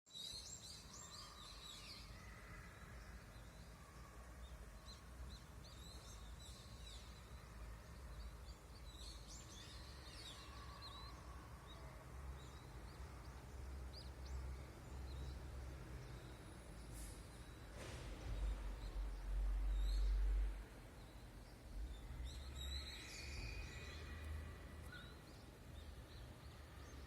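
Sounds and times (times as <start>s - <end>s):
birds chirping and singing: 5.0s - 15.4s, 21.0s - 27.0s
steady low rumble: 17.7s - 22.6s.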